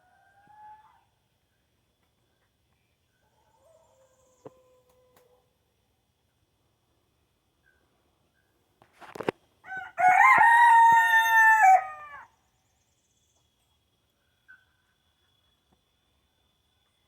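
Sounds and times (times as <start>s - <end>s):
rooster crowing: 9.6s - 12.3s.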